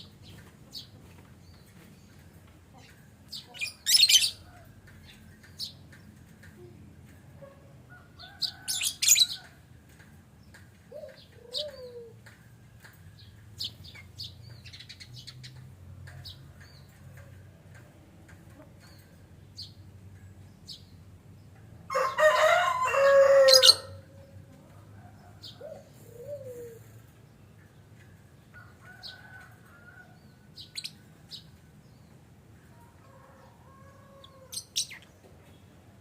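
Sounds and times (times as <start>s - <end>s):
lovebirds short high chirps: 3.4s - 4.4s.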